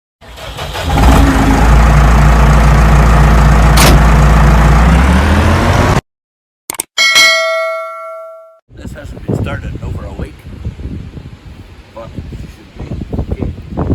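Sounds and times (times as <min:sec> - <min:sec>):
tractor diesel engine running: 0:00.2 - 0:04.9.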